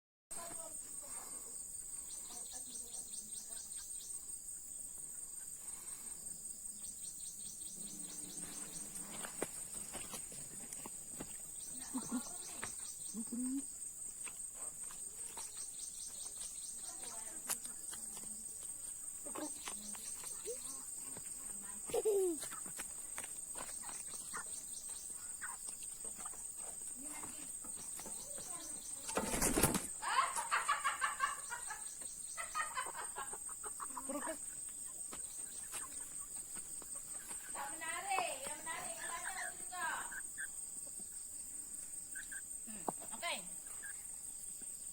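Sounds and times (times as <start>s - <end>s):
chickens clucking: 14.6s - 37.9s, 38.8s - 44.1s
chicken clucking: 23.8s - 26.9s, 27.9s - 37.6s.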